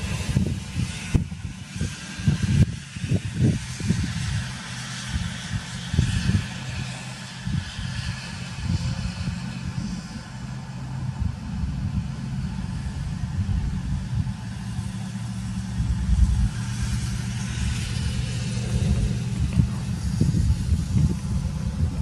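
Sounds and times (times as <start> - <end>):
wind buffeting microphone: 0.0 - 22.0
vehicle engine idling: 8.4 - 22.0.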